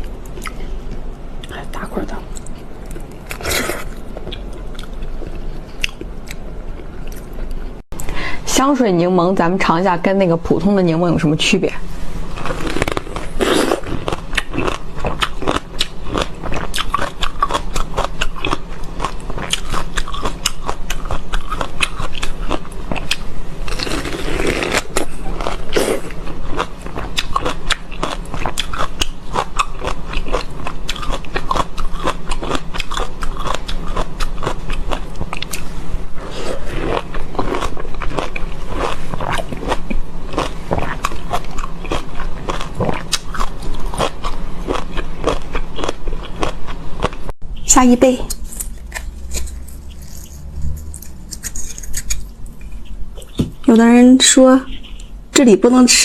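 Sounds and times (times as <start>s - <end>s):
crisp wet chewing crunches: 12.4s - 35.7s, 48.3s - 53.4s.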